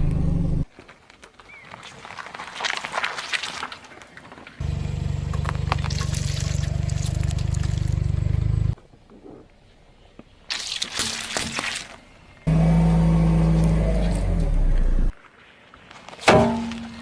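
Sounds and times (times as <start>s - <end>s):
low car engine hum: 0.0s - 0.7s, 4.6s - 9.0s, 12.4s - 15.2s
liquid splashing and trickling: 1.5s - 4.6s, 5.8s - 8.0s, 10.5s - 12.2s.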